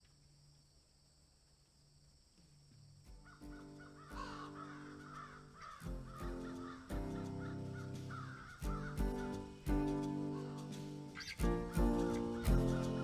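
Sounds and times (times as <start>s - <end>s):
crows cawing: 3.1s - 13.0s
music: 3.4s - 13.0s.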